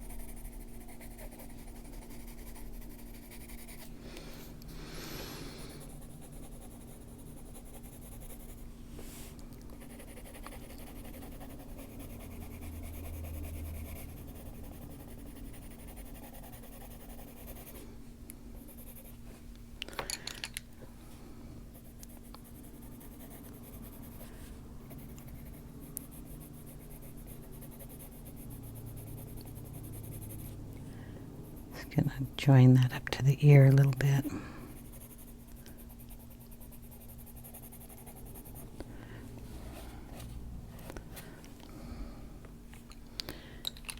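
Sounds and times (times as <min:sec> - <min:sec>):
pencil scratching on paper: 0:00.0 - 0:04.0, 0:05.6 - 0:08.6, 0:09.8 - 0:17.8, 0:18.6 - 0:19.2, 0:21.8 - 0:30.6, 0:34.7 - 0:38.7
steady low hum: 0:00.0 - 0:43.9.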